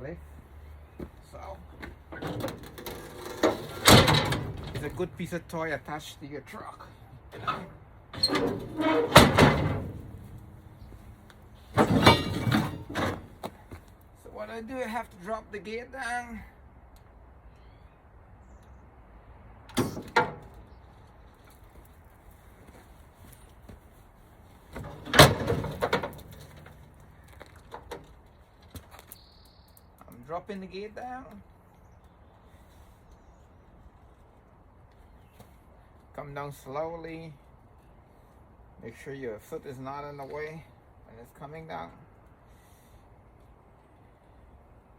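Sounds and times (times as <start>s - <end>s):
liftgate metal clank: 2.2s - 5.0s, 7.4s - 10.5s, 11.8s - 13.3s, 19.7s - 20.5s, 24.8s - 26.7s
metal rattling: 2.2s - 5.1s, 7.4s - 10.9s, 11.7s - 13.4s, 24.8s - 27.0s
loud metal bang: 8.2s - 10.8s, 11.8s - 13.3s.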